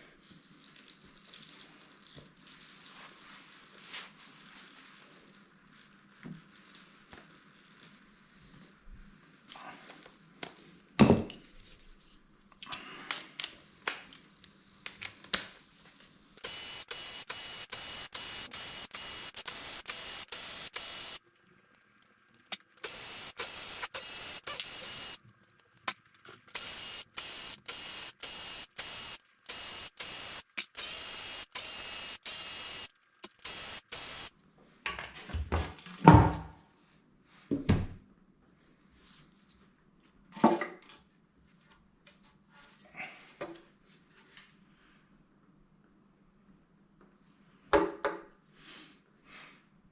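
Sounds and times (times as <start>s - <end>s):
compressed air hissing: 16.4s - 21.2s, 22.8s - 25.2s, 26.5s - 34.3s.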